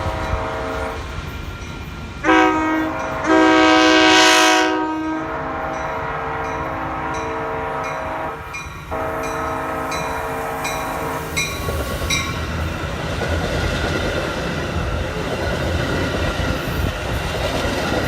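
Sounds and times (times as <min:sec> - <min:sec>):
train horn blasts: 0:00.0 - 0:01.1, 0:02.2 - 0:11.6.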